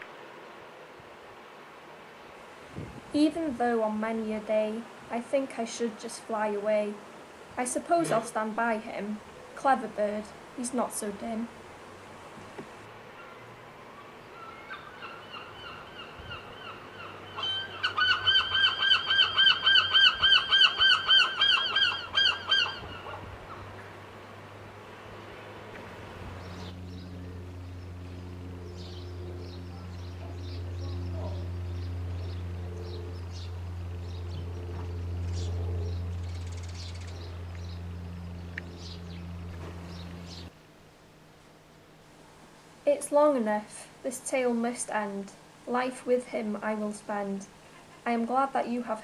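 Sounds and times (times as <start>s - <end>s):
steady low hum: 0.0s - 49.0s
seagull calling: 13.1s - 23.8s.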